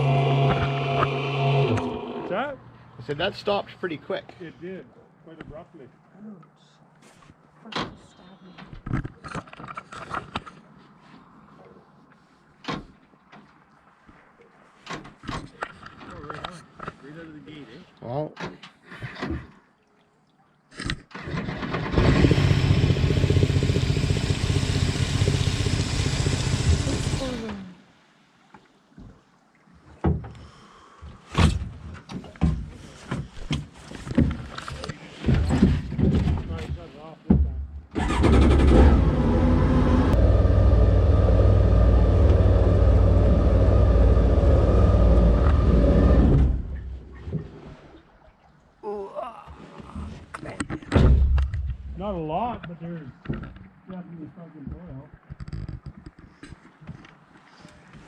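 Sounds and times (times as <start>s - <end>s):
boat engine starting and running: 0.0s - 2.6s, 21.1s - 27.7s, 38.0s - 47.1s.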